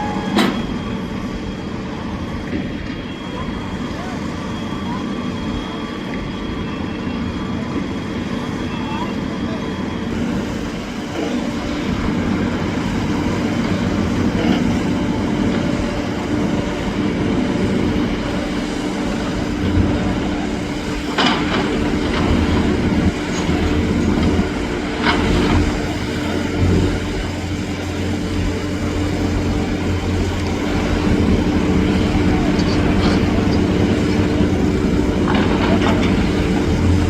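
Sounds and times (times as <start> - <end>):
engine droning: 0.0 - 37.0.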